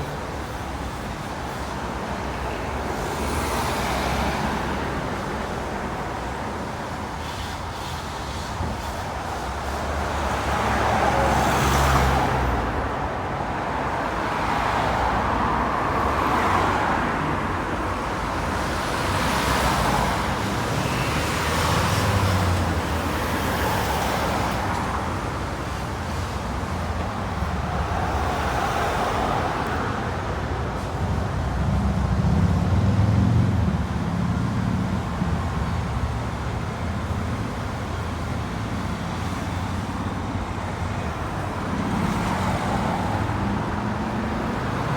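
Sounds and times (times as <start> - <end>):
vehicles passing with tyre noise: 0.0 - 44.9.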